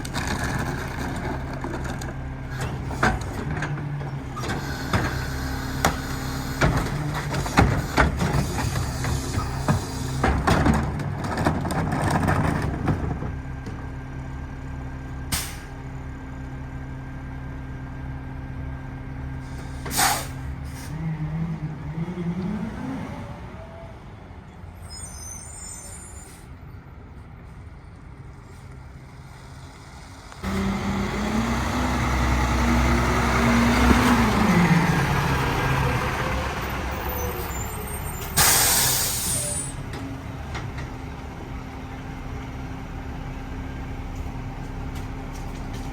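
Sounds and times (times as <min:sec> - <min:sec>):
garbage truck diesel engine: 0:00.0 - 0:45.9
air brake hiss: 0:15.3 - 0:15.8, 0:19.5 - 0:21.0, 0:37.4 - 0:39.8
short air hisses: 0:19.5 - 0:20.9, 0:38.3 - 0:39.8.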